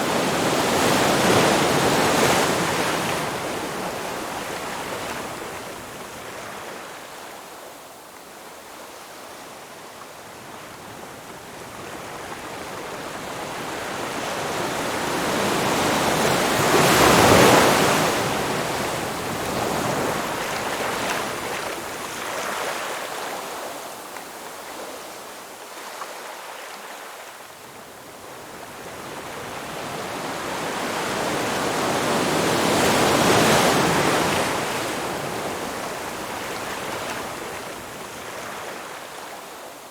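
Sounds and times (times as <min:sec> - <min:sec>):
ocean surf washing ashore: 0:13.6 - 0:23.8.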